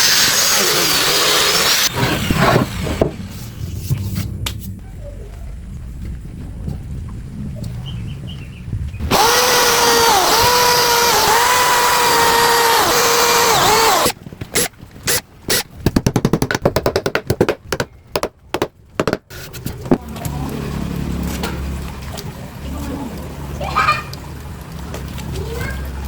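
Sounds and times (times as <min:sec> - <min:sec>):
power tool motor whining: 0:09.0 - 0:15.6.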